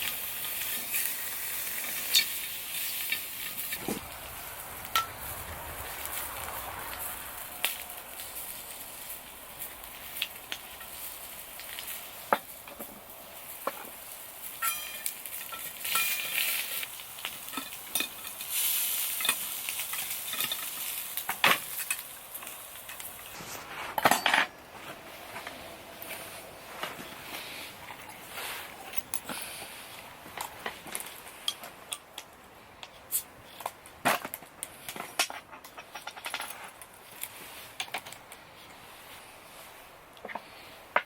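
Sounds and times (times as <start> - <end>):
food sizzling in a pan: 0.0 - 23.6
metal utensils scraping a pan: 14.6 - 16.9.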